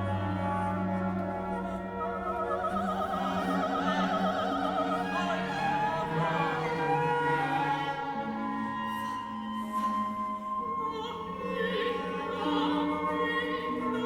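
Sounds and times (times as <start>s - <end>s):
orchestral strings: 0.0s - 14.0s.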